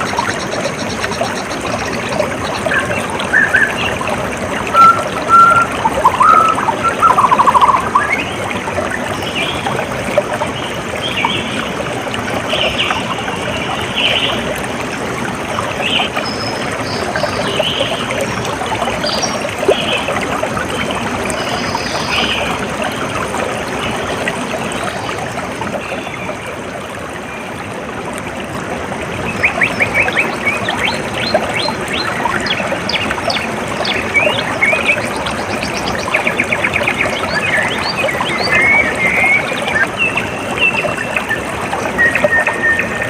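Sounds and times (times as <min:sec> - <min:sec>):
stream trickling and burbling: 0:00.0 - 0:43.0
bird chirps: 0:04.8 - 0:08.3.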